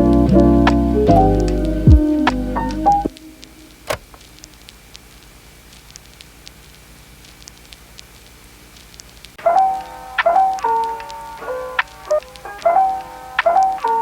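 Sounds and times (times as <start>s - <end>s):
lo-fi piano music: 0.0s - 4.5s, 9.4s - 14.0s.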